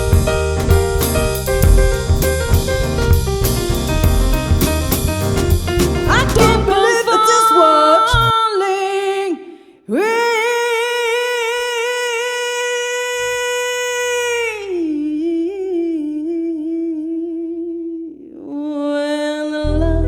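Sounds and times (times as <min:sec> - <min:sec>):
jazz band with drums and piano: 0:00.0 - 0:06.9
person singing unaccompanied: 0:06.1 - 0:20.0.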